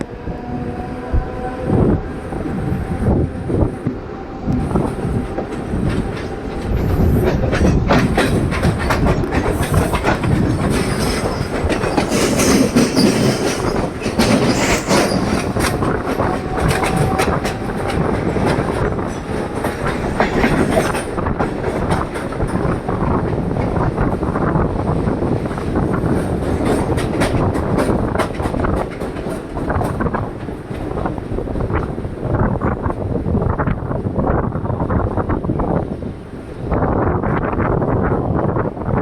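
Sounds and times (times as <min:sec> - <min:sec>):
train wheels clattering over joints: 0:04.6 - 0:31.2.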